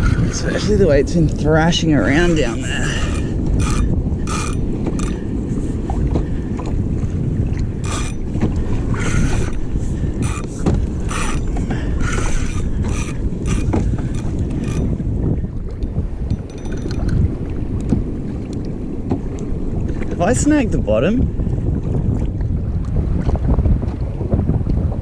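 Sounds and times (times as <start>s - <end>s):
wind buffeting microphone: 0.0s - 25.0s
fishing reel ratcheting: 2.1s - 5.3s, 7.8s - 15.0s, 16.2s - 17.2s.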